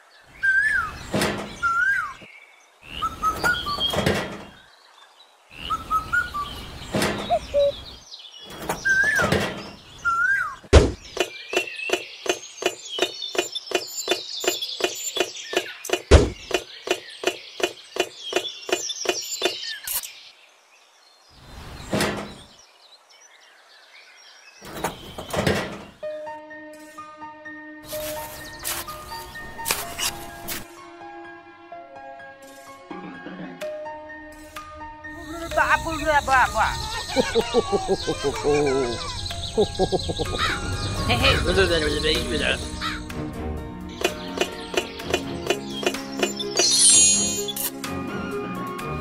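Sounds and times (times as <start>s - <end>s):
bird chirps: 0.2s - 4.7s, 5.5s - 20.4s, 21.3s - 26.0s, 35.1s - 43.2s, 43.9s - 47.7s.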